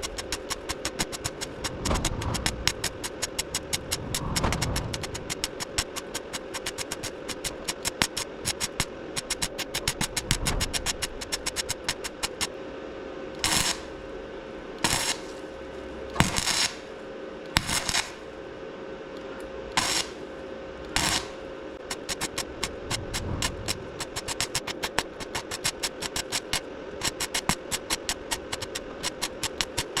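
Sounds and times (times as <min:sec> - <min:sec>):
rapid even ticking: 0:00.0 - 0:12.5, 0:21.8 - 0:30.0
welding bursts: 0:00.0 - 0:12.5, 0:13.4 - 0:13.9, 0:14.8 - 0:15.4, 0:16.2 - 0:16.9, 0:17.6 - 0:18.2, 0:19.8 - 0:20.2, 0:20.9 - 0:30.0
faint steady hum: 0:00.0 - 0:30.0.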